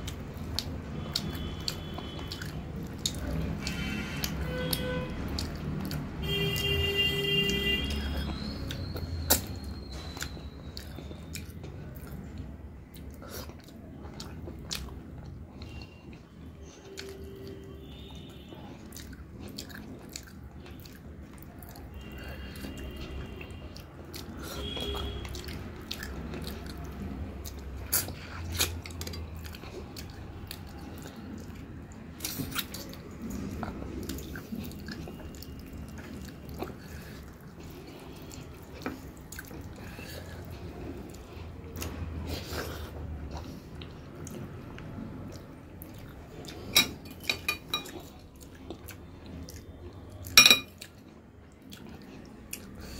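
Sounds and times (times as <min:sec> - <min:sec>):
close chewing and mouth sounds: 0:00.0 - 0:52.9
spoon clinking against a bowl: 0:46.7 - 0:48.0, 0:50.4 - 0:50.8.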